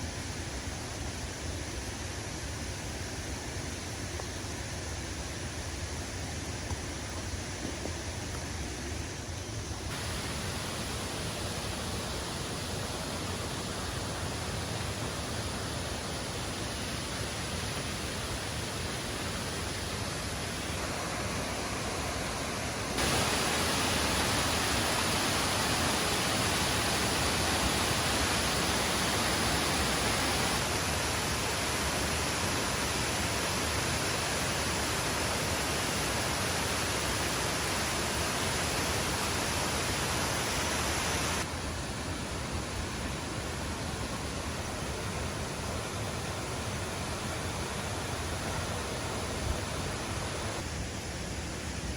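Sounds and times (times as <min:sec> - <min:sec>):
waterfall rushing: 0:09.9 - 0:50.7.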